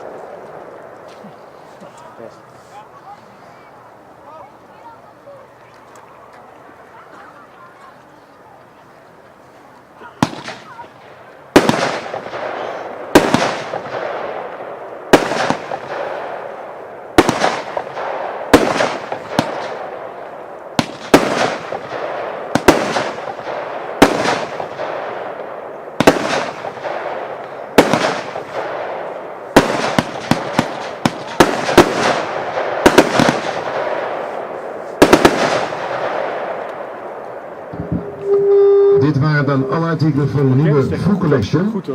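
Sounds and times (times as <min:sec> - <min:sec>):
firework bangs with crackle: 0:10.1 - 0:38.2.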